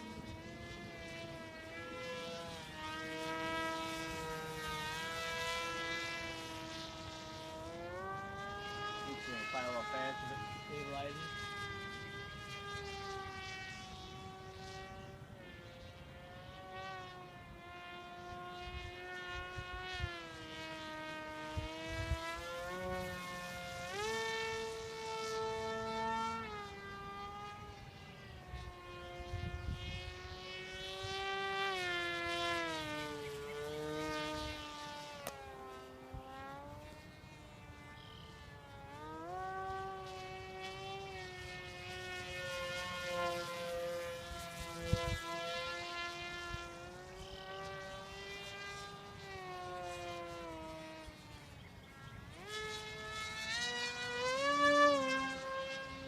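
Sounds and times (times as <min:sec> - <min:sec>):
electric motor and propeller whine: 0:00.0 - 0:56.0
wind buffeting microphone: 0:27.1 - 0:31.2, 0:44.0 - 0:47.5.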